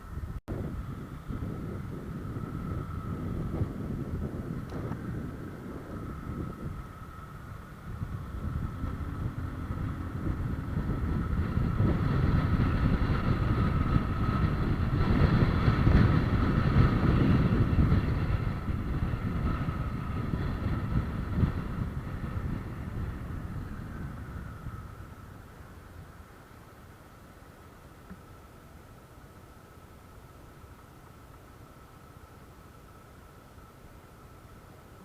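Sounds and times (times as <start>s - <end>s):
wind on microphone: 0.0s - 26.4s
faint whine: 0.0s - 35.0s
vehicle rumble: 0.0s - 35.0s.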